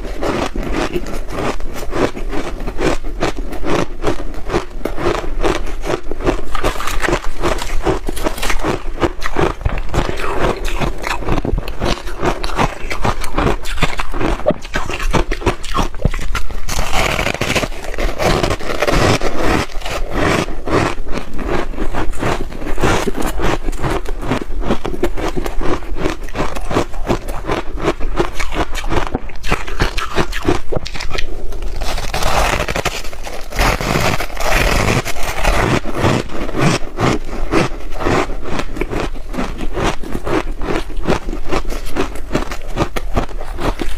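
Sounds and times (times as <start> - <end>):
chewing crunchy ice: 0.0 - 43.9.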